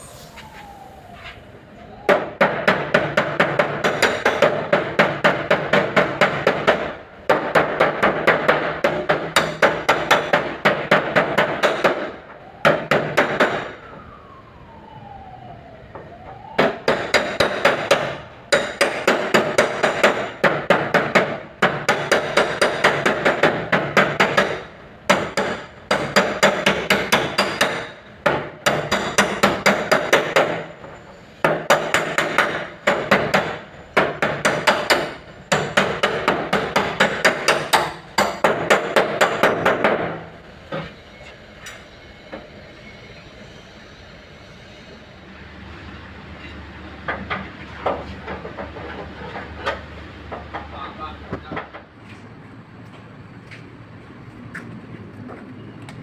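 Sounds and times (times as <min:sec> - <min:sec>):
hammer beating sheet metal: 0:16.8 - 0:30.7, 0:31.4 - 0:40.2.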